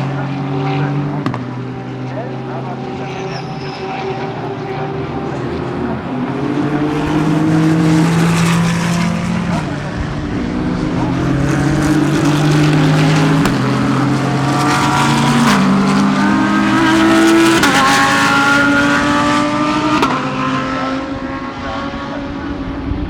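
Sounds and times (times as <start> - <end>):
race car engines at full throttle: 0.0 - 23.0.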